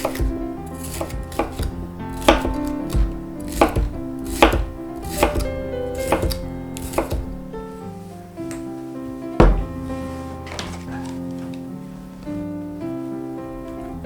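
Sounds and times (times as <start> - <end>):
knife tapping on cutting board: 0.0 - 7.4, 9.4 - 9.7
quiet background music: 0.0 - 14.0.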